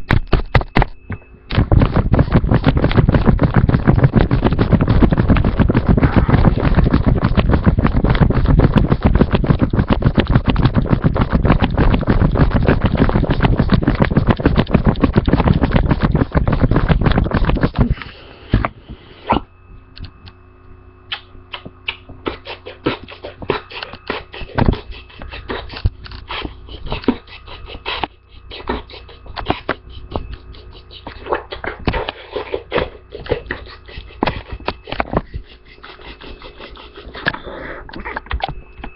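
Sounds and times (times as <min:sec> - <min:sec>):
rapid irregular clicks and taps: 0:00.0 - 0:17.9
faint steady hum: 0:00.0 - 0:38.9.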